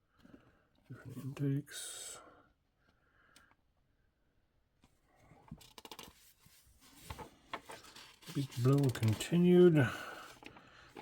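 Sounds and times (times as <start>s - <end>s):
magazine pages rustling: 5.6s - 11.0s.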